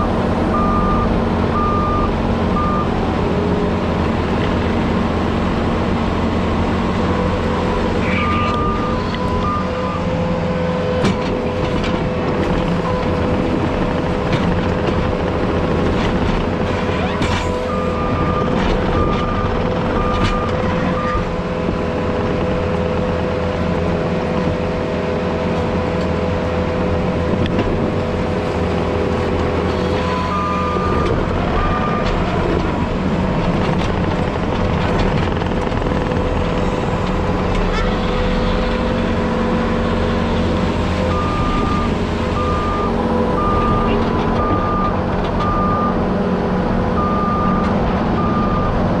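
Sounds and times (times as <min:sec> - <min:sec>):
diesel engine running under load: 0:00.0 - 0:49.0
reverse alarm beeping: 0:00.6 - 0:02.9, 0:08.0 - 0:10.1.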